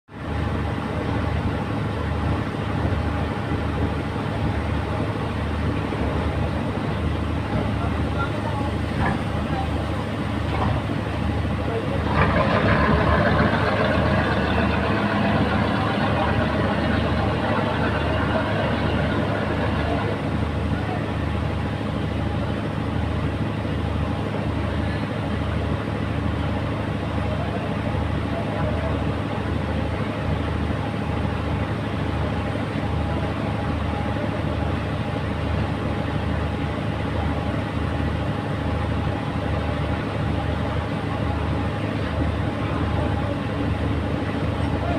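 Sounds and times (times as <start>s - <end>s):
large diesel engine humming: 0.1s - 44.9s.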